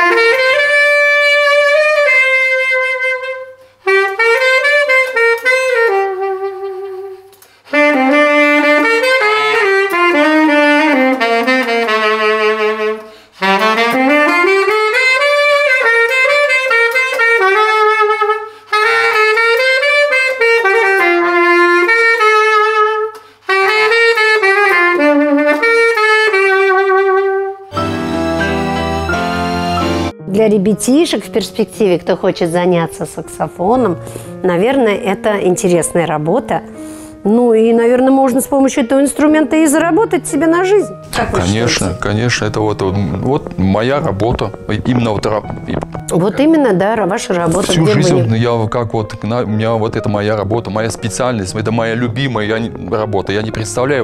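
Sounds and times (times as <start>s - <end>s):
saxophone playing slow melody: 0.0s - 30.2s, 40.9s - 46.1s, 47.5s - 48.4s
music: 0.0s - 54.0s.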